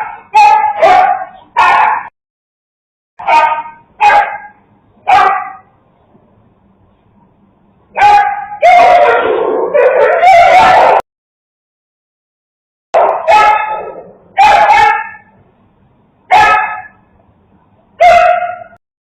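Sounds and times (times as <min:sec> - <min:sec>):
dogs barking: 0:00.0 - 0:02.1, 0:03.2 - 0:05.7, 0:08.0 - 0:11.0, 0:13.0 - 0:15.3, 0:16.3 - 0:17.0, 0:18.0 - 0:18.8.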